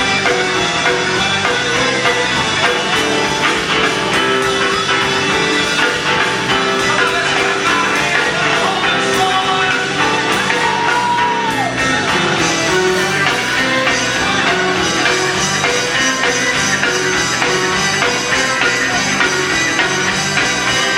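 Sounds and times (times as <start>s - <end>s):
gospel band playing: 0.0s - 20.9s
person singing: 2.6s - 19.8s.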